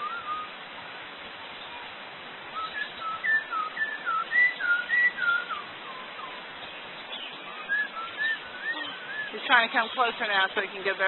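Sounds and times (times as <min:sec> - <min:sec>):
whistled notes: 0:00.0 - 0:00.5, 0:02.6 - 0:06.4, 0:07.6 - 0:09.5
bird mimicking whistles: 0:07.6 - 0:09.4.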